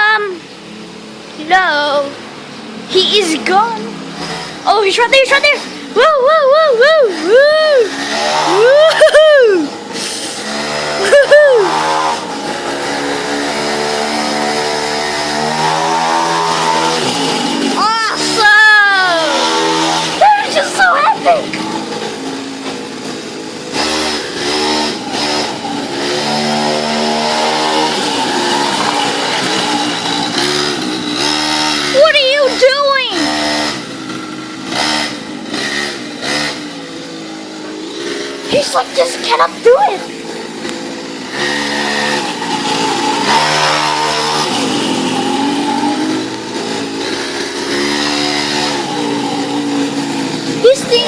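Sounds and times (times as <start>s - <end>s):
mini motorcycle engine revving: 0.0s - 51.0s.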